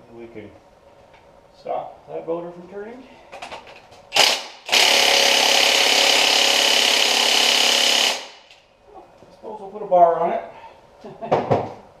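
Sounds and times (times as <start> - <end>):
impact wrench hammering: 4.2 - 8.6.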